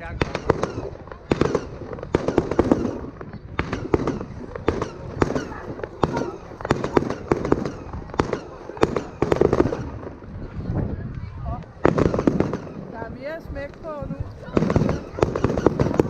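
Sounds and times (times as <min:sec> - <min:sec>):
fireworks bursting: 0:00.0 - 0:10.7, 0:11.6 - 0:16.0.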